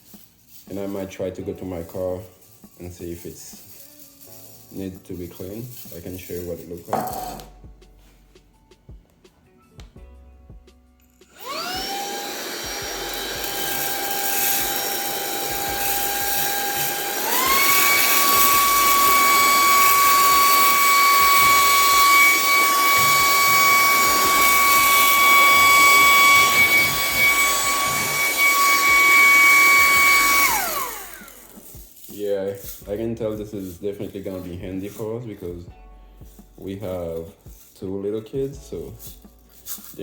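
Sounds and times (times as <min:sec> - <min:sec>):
handheld vacuum motor whining: 0:11.3 - 0:35.5.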